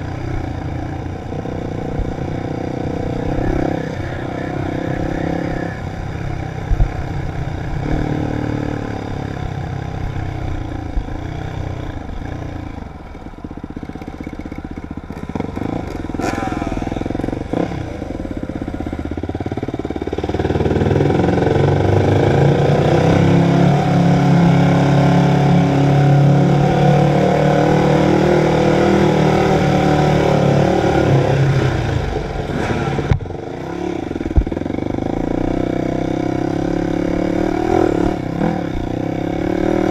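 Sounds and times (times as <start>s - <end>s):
dirt bike engine revving: 1.4s - 6.6s, 14.2s - 39.9s.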